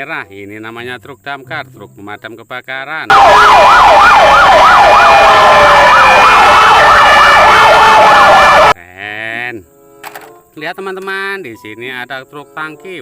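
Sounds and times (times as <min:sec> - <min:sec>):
fire engine siren: 0:03.1 - 0:08.8.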